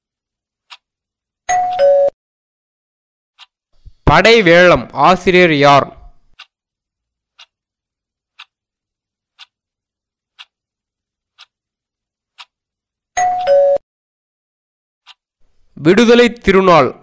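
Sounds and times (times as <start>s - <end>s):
soft clock ticks: 0.6s - 1.9s, 3.4s - 4.0s, 6.2s - 13.6s, 15.0s - 15.6s.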